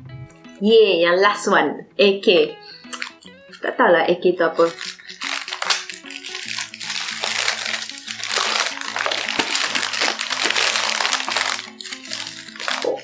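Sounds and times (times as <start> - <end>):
background music with bass line: 0.0 - 0.7
food wrapping crinkling: 3.0 - 3.2, 4.6 - 13.0.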